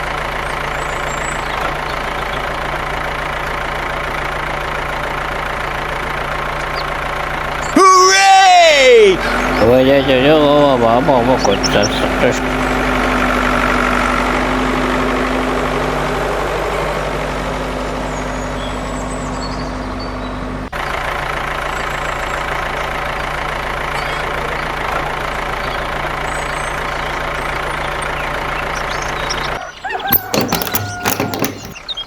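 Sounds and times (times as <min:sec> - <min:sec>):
engine idling: 0:00.0 - 0:32.0
sharp clicks and knocks: 0:30.0 - 0:31.9.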